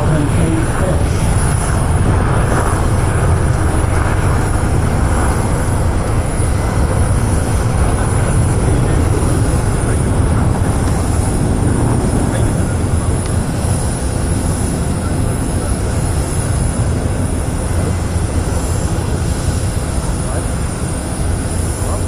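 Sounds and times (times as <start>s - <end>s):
aircraft engine rumble: 0.0s - 22.0s.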